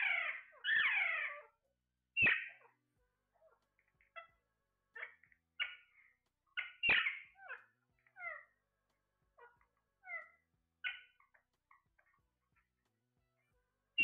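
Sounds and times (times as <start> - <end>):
parrot squawking: 0.0 - 1.6, 2.2 - 2.8, 3.4 - 4.4, 5.0 - 8.6, 9.4 - 12.7.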